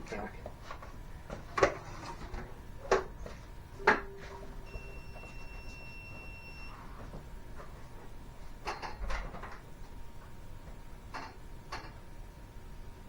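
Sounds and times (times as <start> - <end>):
brief ringing tone: 4.0 - 6.9.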